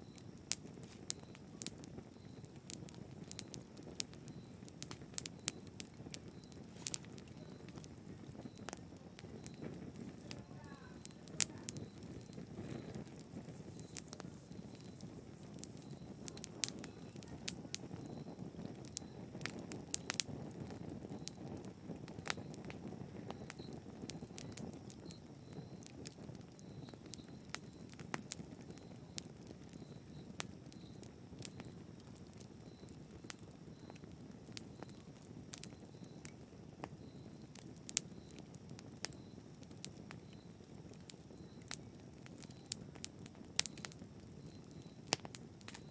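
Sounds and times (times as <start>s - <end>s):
fire crackling and popping: 0.0s - 45.9s
rush of flames: 0.1s - 36.3s.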